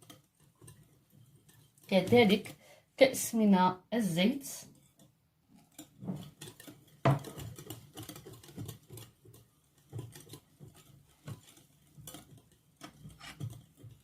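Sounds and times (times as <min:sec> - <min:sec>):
utensil knocking mixing bowl: 0:05.8 - 0:14.0.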